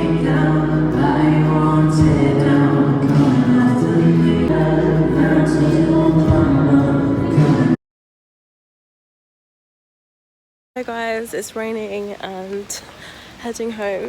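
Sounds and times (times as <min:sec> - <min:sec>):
choir singing sustained chords: 0:00.0 - 0:07.8
steady low bass: 0:00.0 - 0:07.8.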